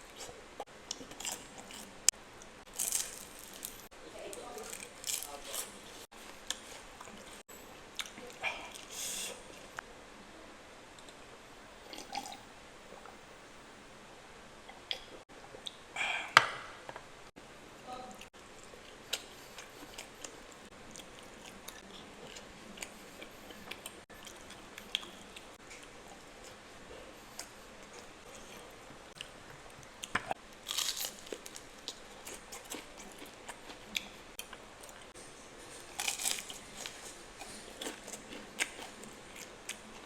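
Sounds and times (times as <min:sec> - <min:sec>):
chewing and mouth clicks: 0:18.3 - 0:26.6, 0:27.3 - 0:35.1, 0:35.8 - 0:40.0.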